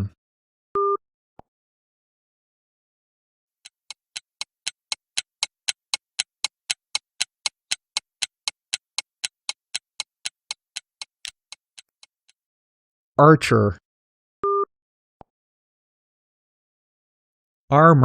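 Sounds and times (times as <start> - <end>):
clock-like ticking: 3.7 - 12.1.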